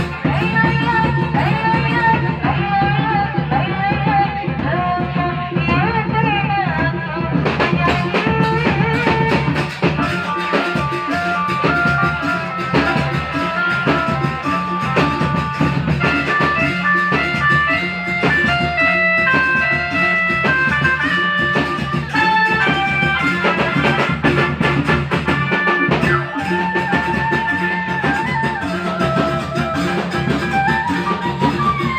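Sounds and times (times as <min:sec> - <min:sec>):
person singing: 0:00.0 - 0:24.4, 0:25.6 - 0:31.9
live band music: 0:00.0 - 0:31.9.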